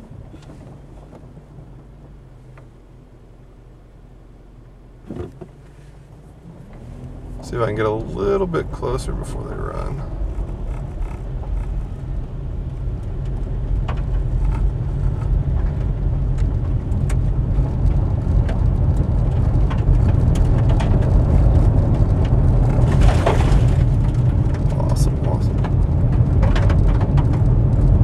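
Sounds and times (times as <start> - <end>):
car driving rumble: 0.0 - 28.0
small knocks and rattles: 9.7 - 28.0.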